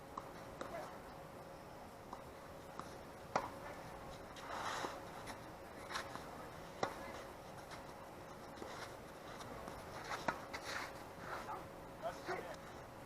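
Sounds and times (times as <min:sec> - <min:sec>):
tennis ball impacts: 0:02.0 - 0:08.8.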